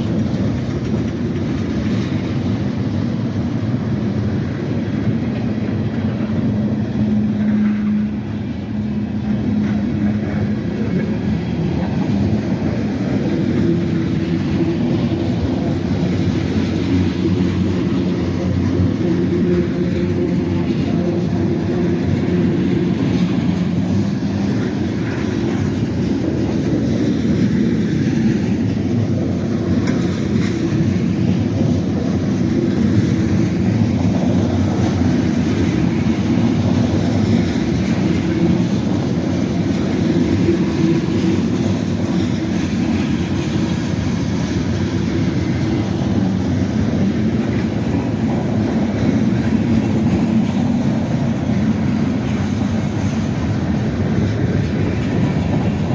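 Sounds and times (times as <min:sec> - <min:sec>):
freight train rolling past: 0:00.0 - 0:55.9.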